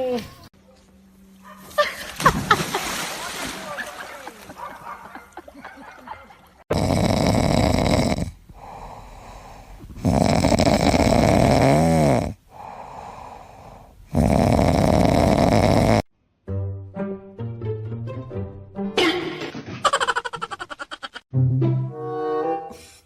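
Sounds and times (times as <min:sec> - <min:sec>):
pet snoring: 0:06.7 - 0:16.1
quiet breaths: 0:07.4 - 0:11.5, 0:12.2 - 0:15.8.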